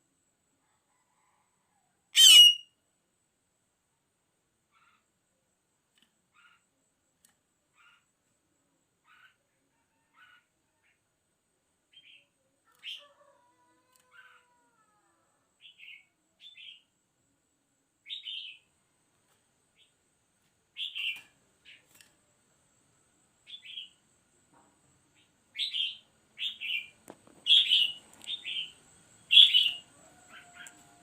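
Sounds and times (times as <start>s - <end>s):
bird chirping calls: 2.2s - 2.6s, 25.2s - 30.8s.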